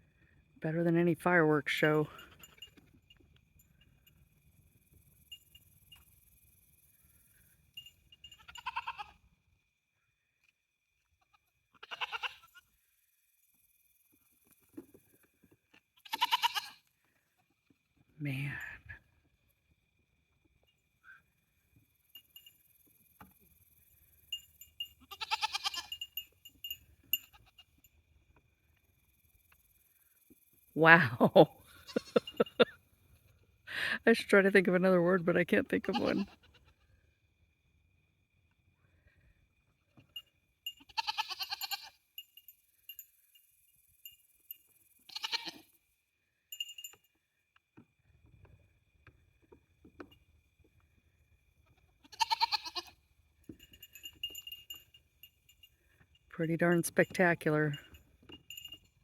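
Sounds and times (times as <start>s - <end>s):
goat bleating: 8.4s - 9.2s, 11.7s - 12.6s, 16.0s - 16.8s, 25.0s - 26.0s, 31.8s - 32.5s, 35.8s - 36.8s, 40.8s - 42.0s, 45.1s - 45.6s, 52.0s - 52.9s.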